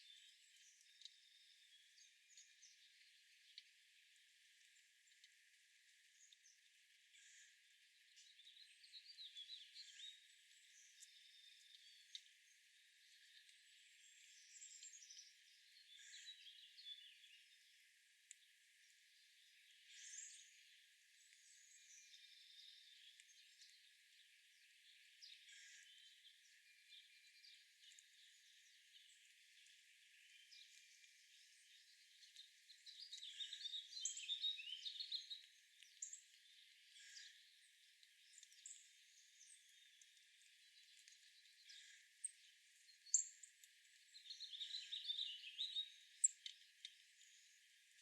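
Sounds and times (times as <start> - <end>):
faint high bird chirping: 24.6 - 37.6, 40.7 - 43.6, 44.2 - 47.6.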